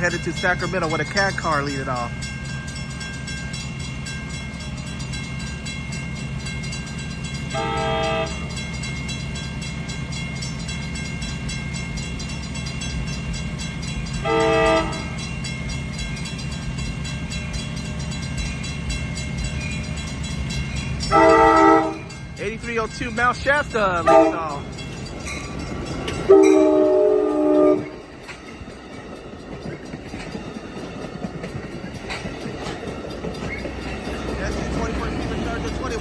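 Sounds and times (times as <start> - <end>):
train rumbling past: 0.0 - 36.0
train air horn blasts: 7.5 - 8.5, 14.2 - 15.2, 21.1 - 22.1, 24.0 - 24.6, 26.3 - 28.0.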